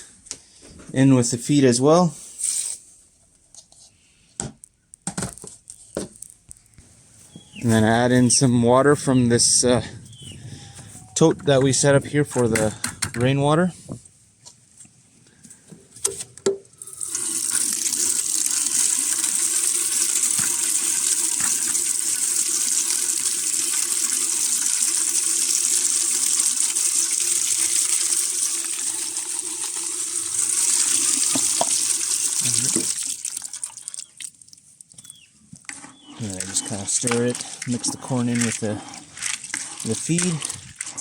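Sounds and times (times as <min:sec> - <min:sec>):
water gushing into bucket: 0:16.8 - 0:34.4, 0:36.2 - 0:41.0.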